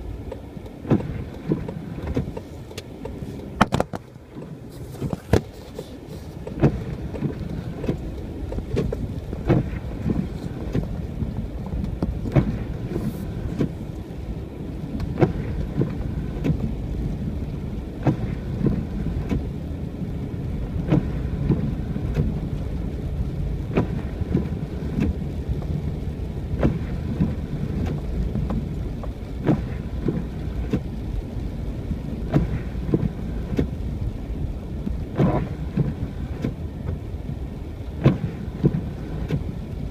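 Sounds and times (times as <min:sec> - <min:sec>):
car road rumble: 0:00.0 - 0:39.9
knocks and thuds: 0:03.6 - 0:04.1.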